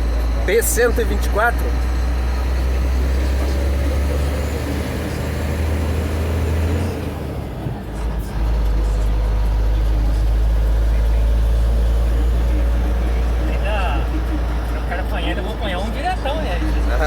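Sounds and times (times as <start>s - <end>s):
truck diesel engine drone: 0.0s - 17.0s.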